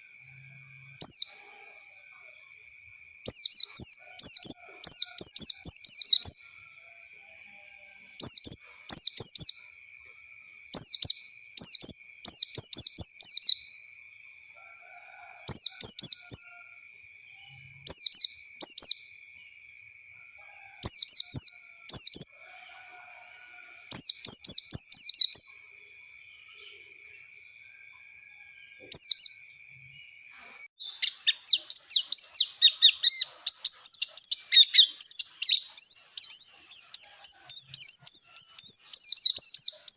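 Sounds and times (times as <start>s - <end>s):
bird twittering chirps: 0.0s - 1.4s, 3.2s - 6.6s, 8.1s - 13.8s, 15.5s - 16.6s, 17.8s - 19.2s, 20.8s - 22.4s, 23.9s - 25.7s, 28.9s - 29.4s, 30.8s - 39.9s.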